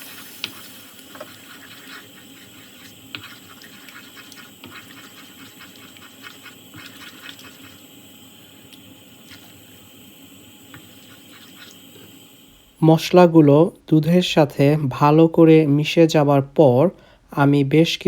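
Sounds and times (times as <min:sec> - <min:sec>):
pan bubbling and crackling: 0:00.0 - 0:12.8.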